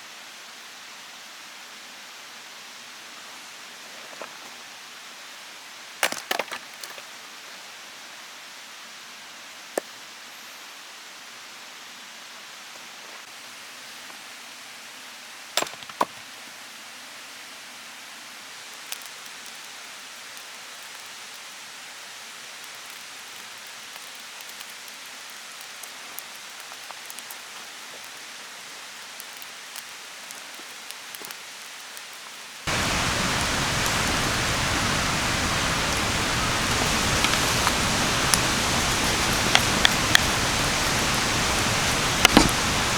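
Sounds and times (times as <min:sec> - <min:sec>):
steady hiss: 0:16.3 - 0:42.9
campfire crackling: 0:25.7 - 0:28.2, 0:29.2 - 0:31.9, 0:32.7 - 0:42.9.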